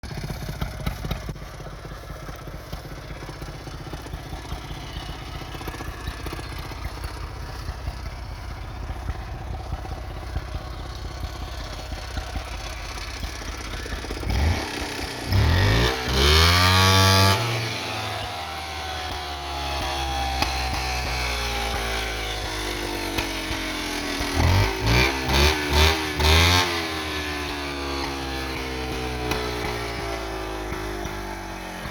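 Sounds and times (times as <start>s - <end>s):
atv engine idling and revving: 0.0s - 31.9s.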